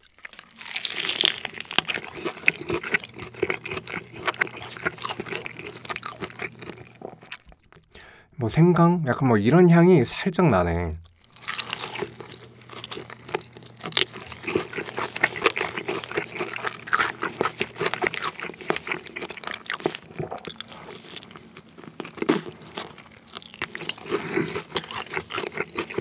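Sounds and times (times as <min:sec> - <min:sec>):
crunching fried chicken: 0:00.0 - 0:08.2, 0:11.0 - 0:26.0.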